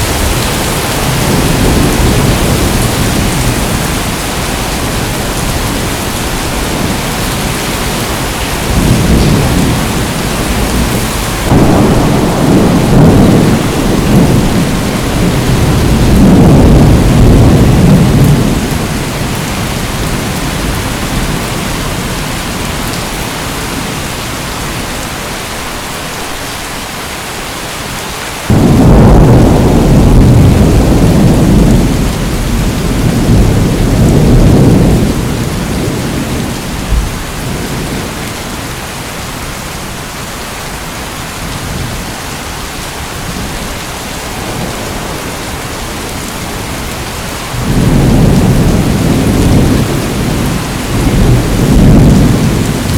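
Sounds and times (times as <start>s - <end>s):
thunder rumble: 0.0s - 23.0s, 28.5s - 38.7s, 44.3s - 52.9s
heavy rain hiss: 0.0s - 52.9s.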